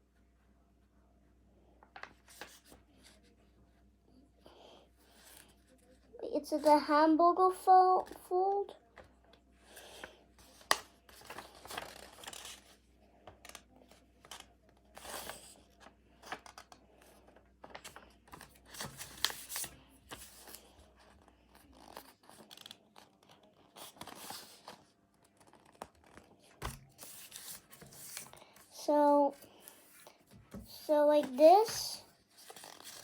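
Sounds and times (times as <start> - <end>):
paper being folded and creased: 10.4 - 13.6, 17.6 - 30.1, 30.7 - 33.0.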